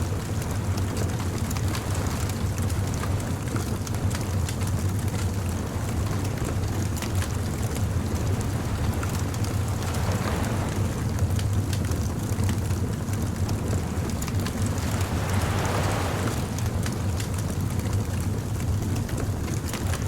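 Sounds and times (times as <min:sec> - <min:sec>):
bonfire crackling and popping: 0:03.0 - 0:20.0.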